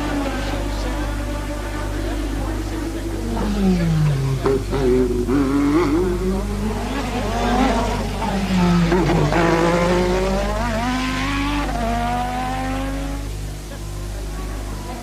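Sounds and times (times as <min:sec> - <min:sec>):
racing car engines at high revs: 0:00.0 - 0:15.0.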